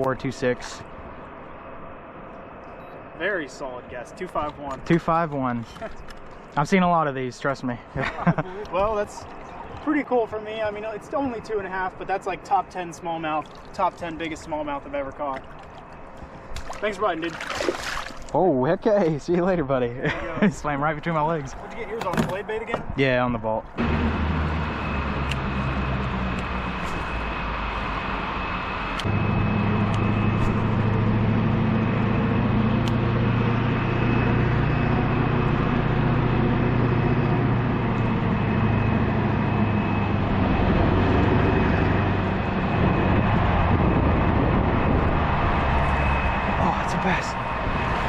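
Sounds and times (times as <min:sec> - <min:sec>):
engine humming: 0:23.3 - 0:48.0.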